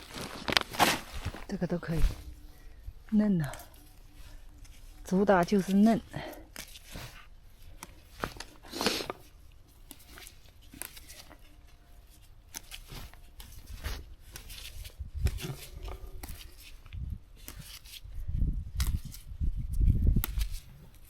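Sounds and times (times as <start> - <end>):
leaves rustling: 0.0 - 21.0
plant stems snapping: 6.5 - 9.1, 9.8 - 11.5, 12.5 - 18.1, 18.7 - 21.0.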